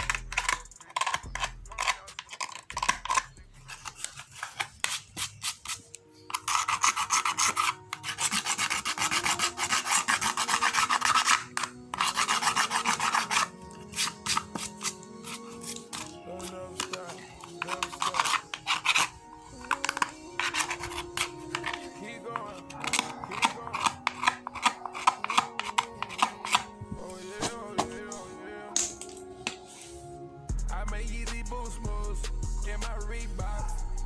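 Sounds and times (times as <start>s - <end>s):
file rasping on plastic: 0.0s - 16.1s, 16.8s - 26.7s
faint rap music: 0.0s - 34.0s.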